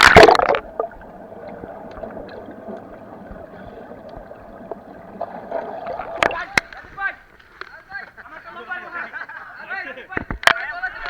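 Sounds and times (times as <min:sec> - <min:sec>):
water sloshing and gurgling: 0:00.0 - 0:07.0.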